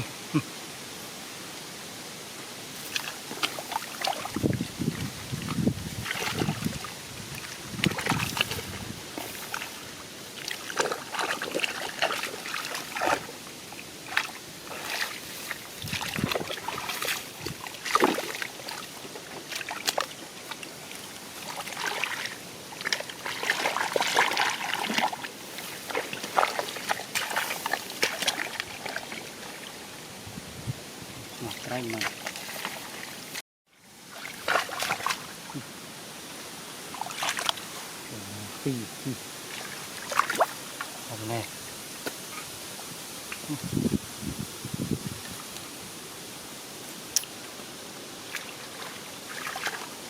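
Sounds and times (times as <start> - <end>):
shallow water splashing: 2.7 - 29.8, 31.3 - 33.4, 34.1 - 35.7, 36.3 - 41.5, 48.2 - 50.0.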